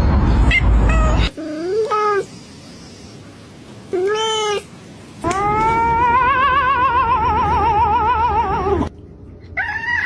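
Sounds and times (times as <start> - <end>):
cat meowing: 3.9 - 8.9
cat yowling: 4.0 - 8.9.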